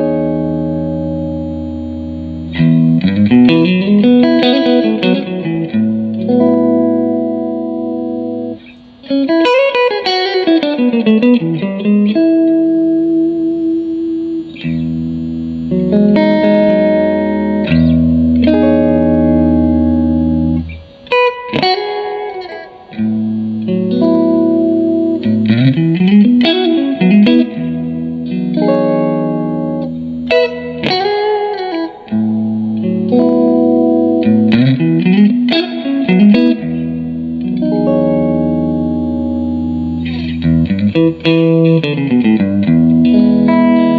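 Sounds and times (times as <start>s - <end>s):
clean electric guitar: 0.0s - 43.9s.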